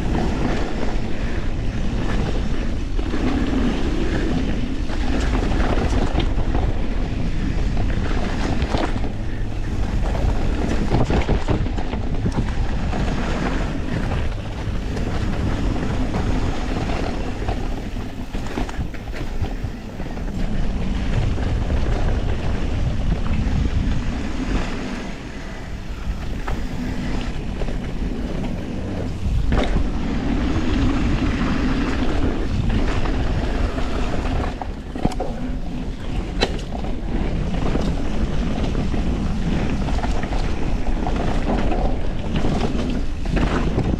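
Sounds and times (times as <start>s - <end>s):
bike rattling: 0.0s - 43.9s
wind buffeting camera: 0.0s - 43.9s
tyres on dirt and rock: 4.9s - 24.1s.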